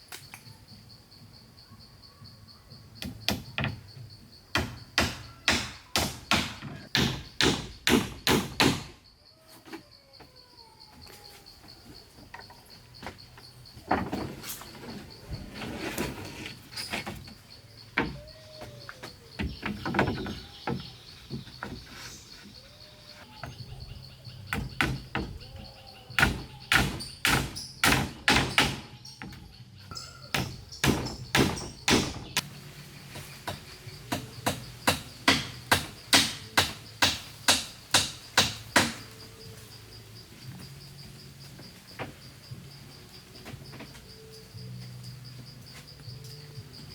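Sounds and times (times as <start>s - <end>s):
tool striking wood: 4.5s - 9.0s, 26.2s - 28.9s, 30.3s - 32.4s, 33.4s - 39.0s.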